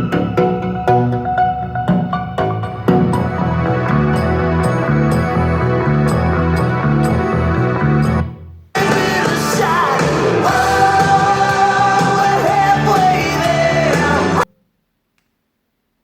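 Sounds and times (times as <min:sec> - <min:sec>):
music track: 0:00.0 - 0:14.5
rock-pop song with singing: 0:08.8 - 0:14.4.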